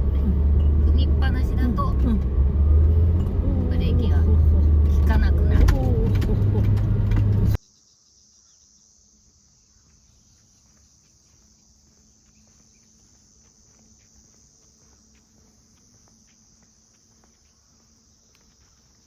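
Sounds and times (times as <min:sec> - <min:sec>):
car road and engine noise: 0:00.0 - 0:07.6
crickets chirping: 0:00.0 - 0:19.0
faint ticks: 0:18.2 - 0:19.0.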